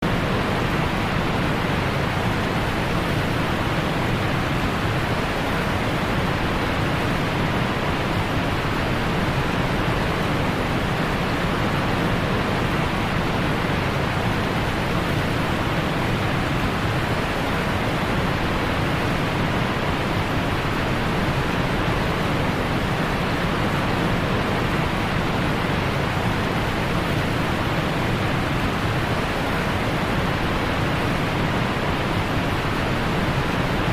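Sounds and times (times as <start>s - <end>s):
waterfall roaring: 0.0s - 33.9s.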